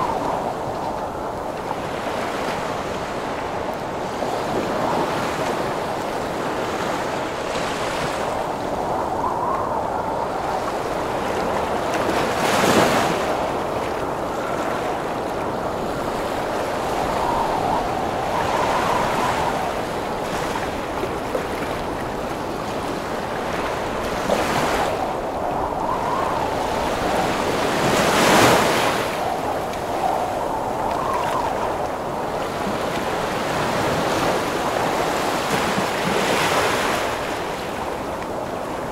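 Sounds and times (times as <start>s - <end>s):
big waves crashing: 0.0s - 38.9s
howling wind: 0.0s - 38.9s
surf roar: 0.0s - 38.9s.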